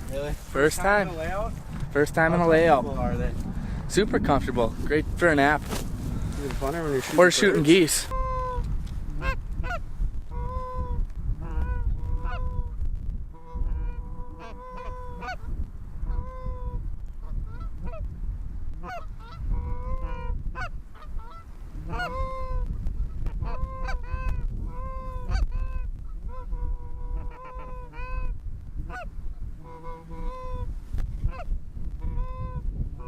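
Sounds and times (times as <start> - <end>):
wind rumble on microphone: 0.0 - 33.0
goose honking: 7.9 - 12.7, 13.4 - 18.0, 18.8 - 22.6, 23.4 - 28.3, 28.9 - 30.7.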